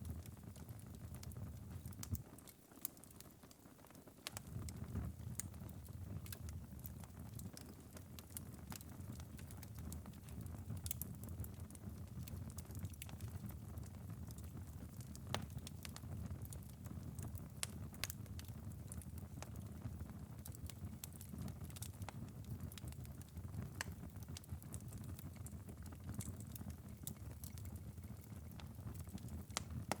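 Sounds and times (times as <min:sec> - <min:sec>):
wood fire embers crackling: 0:00.0 - 0:30.0.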